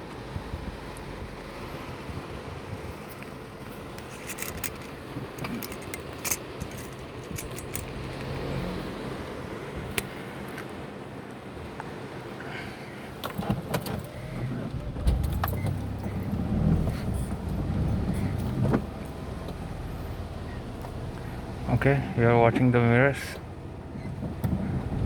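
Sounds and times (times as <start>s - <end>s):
car interior rumble: 0.0s - 25.0s.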